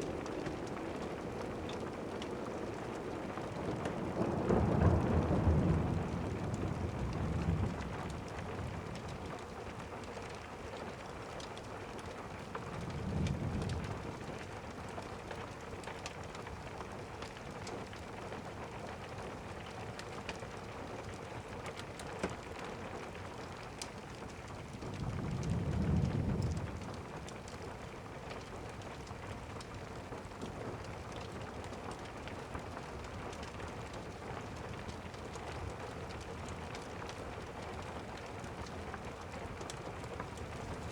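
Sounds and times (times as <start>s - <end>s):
distant thunder rumbles: 0.0s - 9.2s, 24.7s - 27.4s
steady rain: 0.0s - 40.9s.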